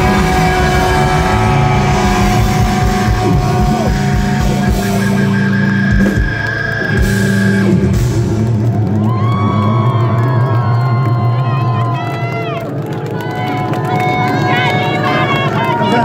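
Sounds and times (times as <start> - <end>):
punk rock band playing: 0.0 - 9.5.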